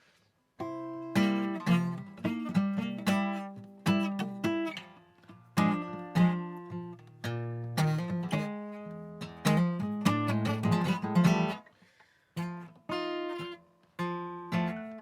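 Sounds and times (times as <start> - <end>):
blues guitar chords: 0.6 - 11.6.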